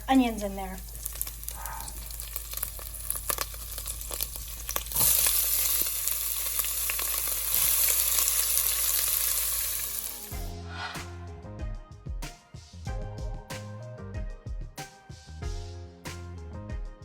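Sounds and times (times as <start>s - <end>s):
hot oil crackling in a pan: 0.0s - 10.5s
onions sizzling in oil: 0.0s - 10.5s.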